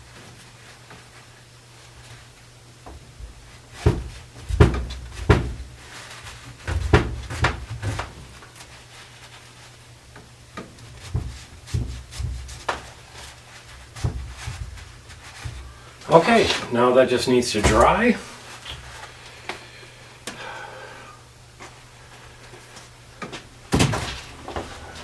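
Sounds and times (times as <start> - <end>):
wood and tools knocking: 3.8 - 5.7.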